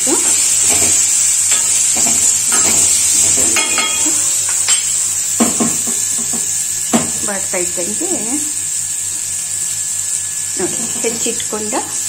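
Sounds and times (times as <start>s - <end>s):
onions sizzling in oil: 0.0s - 12.0s
steel spoon scraping pan: 0.6s - 5.0s.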